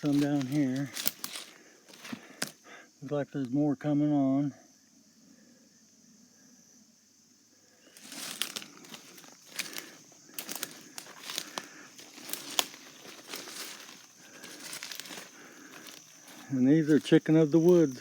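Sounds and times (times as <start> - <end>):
crinkling rustle: 0.0 - 2.5, 8.0 - 18.0
crickets trilling: 0.0 - 18.0.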